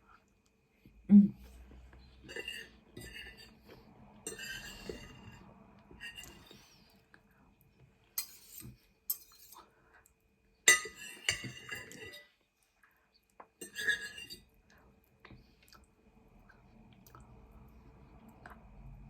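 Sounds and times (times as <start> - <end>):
cutlery scraping on a plate: 2.2 - 6.8, 8.2 - 9.6, 10.7 - 12.3, 13.6 - 14.5.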